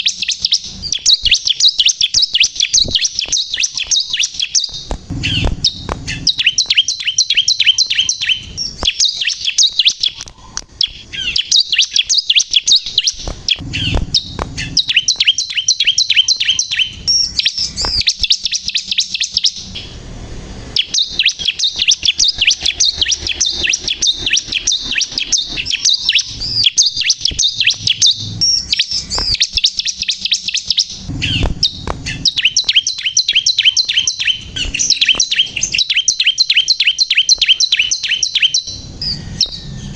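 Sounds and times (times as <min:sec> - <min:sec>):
bird singing high chirping phrases: 0:00.0 - 0:39.9
faint low rumbles: 0:02.8 - 0:07.0, 0:13.0 - 0:15.2, 0:31.0 - 0:33.0.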